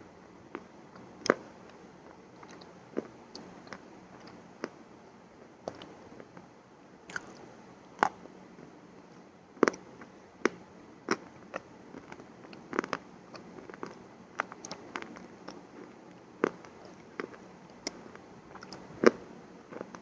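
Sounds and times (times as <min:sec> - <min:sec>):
crunchy food being chewed: 0:02.4 - 0:04.8, 0:07.1 - 0:08.2, 0:11.1 - 0:20.0.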